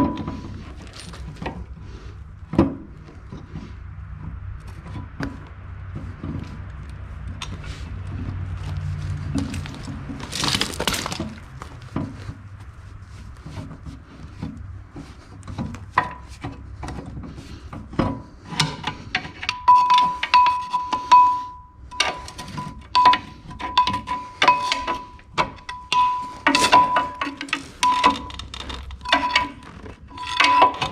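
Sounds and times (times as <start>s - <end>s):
scraping rush: 7.6s - 14.4s
metal clinking and knocking: 9.4s - 12.2s, 22.0s - 30.9s.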